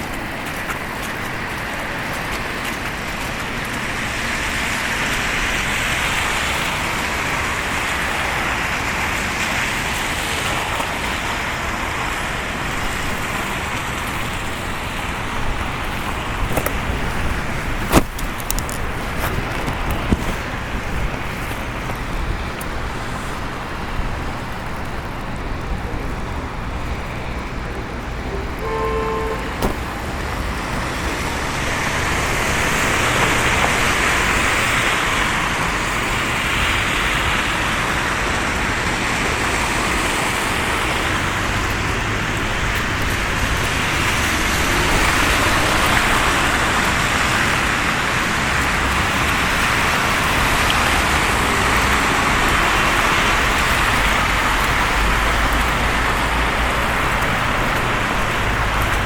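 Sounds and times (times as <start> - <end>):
road traffic rumble: 0.0 - 59.0
brief pitched tone: 28.3 - 29.8.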